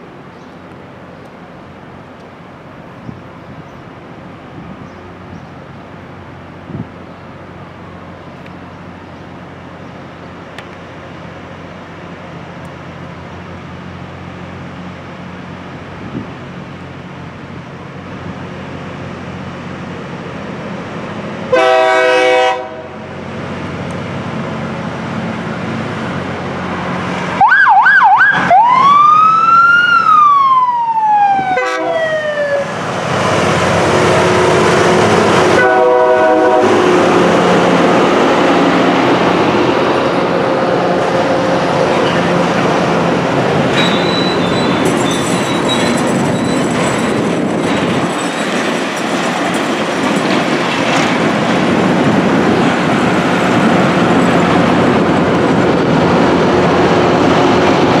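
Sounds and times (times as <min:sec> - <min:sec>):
train engines and wheels din: 0:00.0 - 0:58.0
train horn blast: 0:21.5 - 0:23.0, 0:31.6 - 0:32.1, 0:34.2 - 0:37.5
siren wailing: 0:27.4 - 0:32.7.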